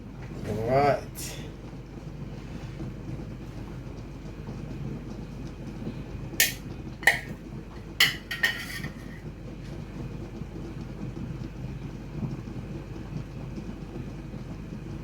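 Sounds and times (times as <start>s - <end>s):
metal utensil clinking on pot: 6.4s - 9.3s.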